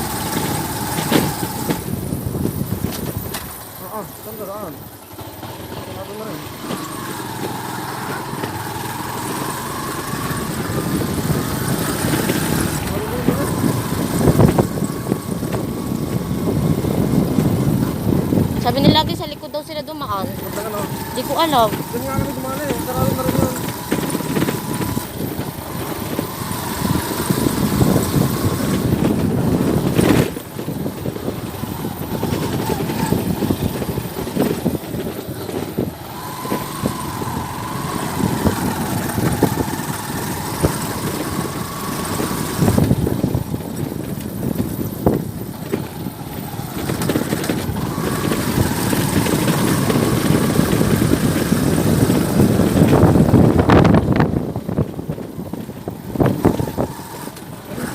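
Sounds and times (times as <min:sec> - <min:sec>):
vehicle engine and road noise: 0:00.0 - 0:57.9.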